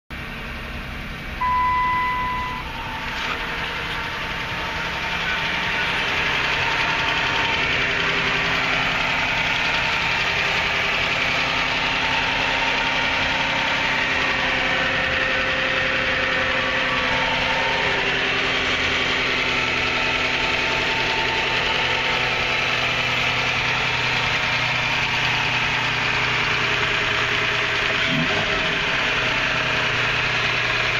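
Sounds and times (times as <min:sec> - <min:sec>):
car engine idling: 0:00.1 - 0:30.9
short electronic beep: 0:01.4 - 0:03.4.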